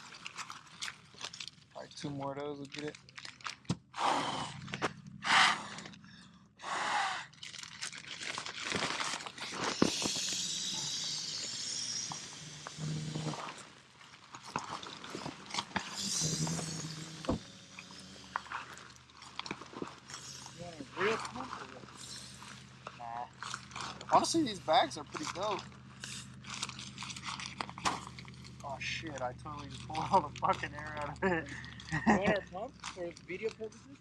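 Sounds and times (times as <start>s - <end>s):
fabric rustling and crinkling: 7.4s - 9.9s, 13.0s - 16.0s, 18.2s - 24.2s
hissing squeeze: 8.9s - 28.2s.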